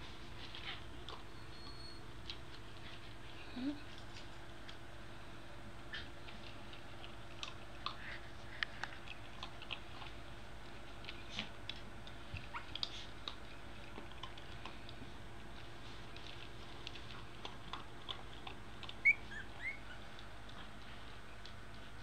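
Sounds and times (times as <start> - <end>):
low steady hum: 0.0 - 22.0
puppies clicking and ticking: 0.4 - 3.2, 5.8 - 22.0
puppies squeaking faintly: 0.6 - 2.2, 18.9 - 20.2.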